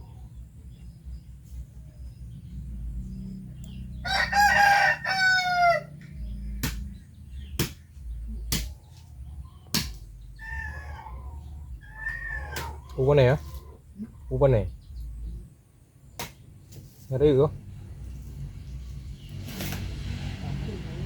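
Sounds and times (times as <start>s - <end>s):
rooster crowing: 4.0s - 6.0s.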